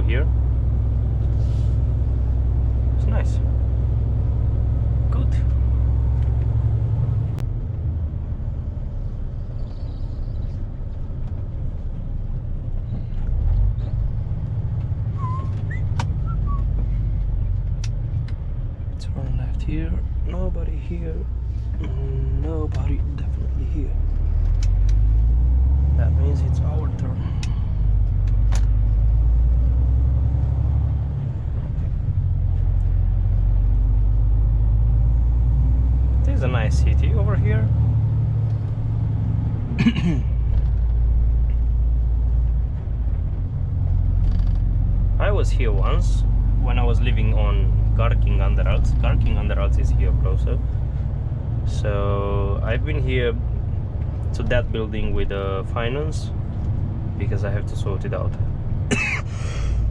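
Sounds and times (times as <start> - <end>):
truck diesel engine rumble: 0.0 - 59.9
brief squeaks: 15.2 - 16.8.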